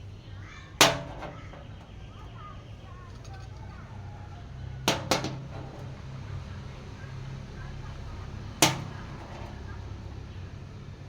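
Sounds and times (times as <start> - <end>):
metal knock with ringing: 4.9 - 6.0.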